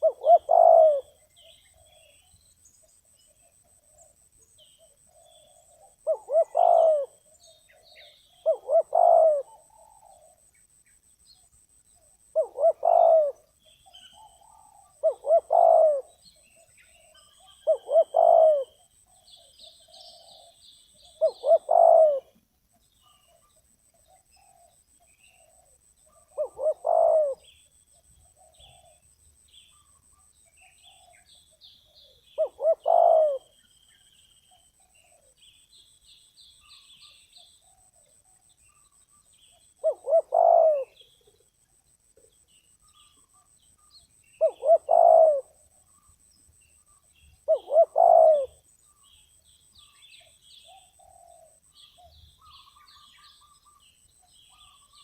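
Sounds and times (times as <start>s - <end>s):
dove cooing: 0.0s - 2.2s, 4.8s - 10.5s, 12.3s - 22.4s, 23.0s - 27.6s, 28.2s - 29.1s, 29.7s - 33.6s, 39.5s - 41.5s, 44.4s - 46.1s, 47.4s - 48.7s, 50.2s - 53.8s
small birds chirping: 0.0s - 55.0s.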